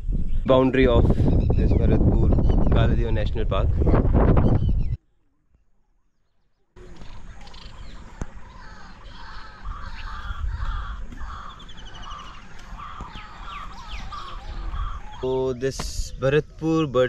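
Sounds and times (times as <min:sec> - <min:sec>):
wind rumble on microphone: 0:00.0 - 0:05.0, 0:07.2 - 0:16.7
birds making harsh calls: 0:06.8 - 0:17.0.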